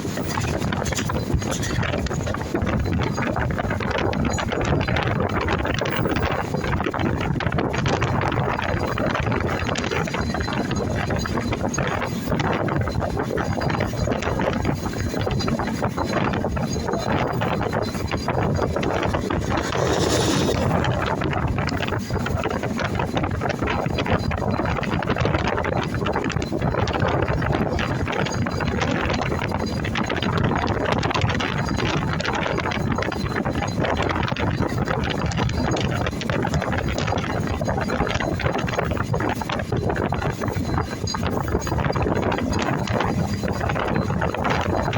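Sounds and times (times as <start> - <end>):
moving train rumble: 0.0 - 44.9
sharp squeal: 17.9 - 21.0.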